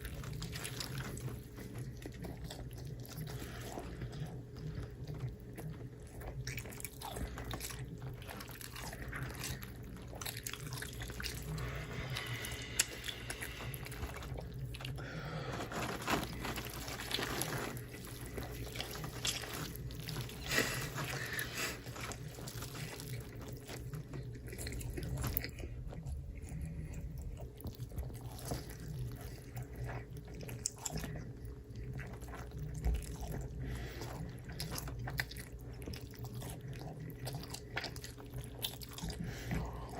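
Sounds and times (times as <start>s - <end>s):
steady low hum: 0.0s - 39.9s
wet chewing and biting: 0.0s - 39.9s.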